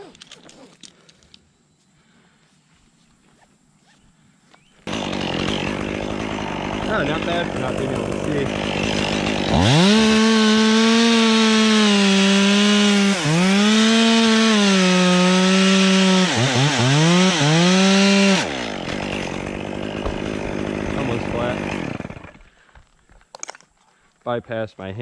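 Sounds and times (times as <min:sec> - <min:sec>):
chainsaw cutting wood: 0:04.8 - 0:22.7.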